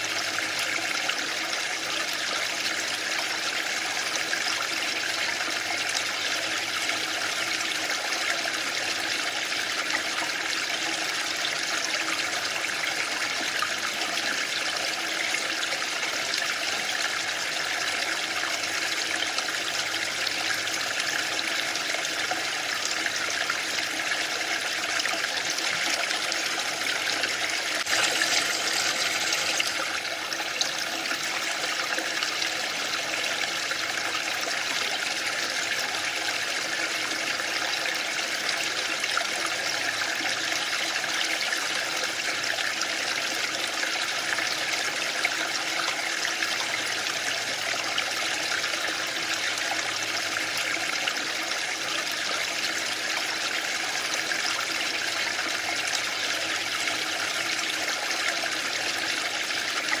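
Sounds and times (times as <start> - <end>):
waterfall: 0.0 - 60.0.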